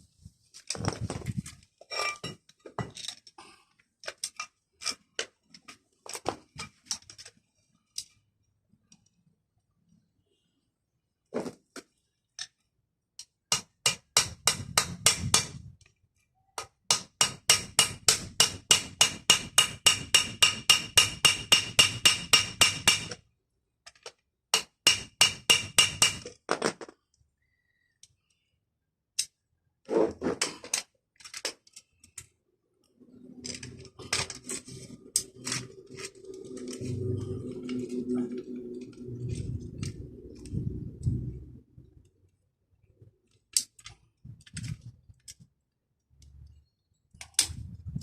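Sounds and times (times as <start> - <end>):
hand tool tapping on metal: 16.9 - 23.2.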